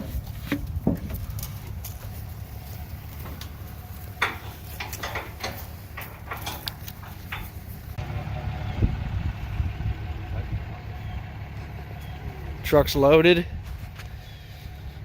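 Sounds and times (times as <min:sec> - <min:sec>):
engine idling: 0:00.0 - 0:15.0
clicks and knocks: 0:04.2 - 0:07.6.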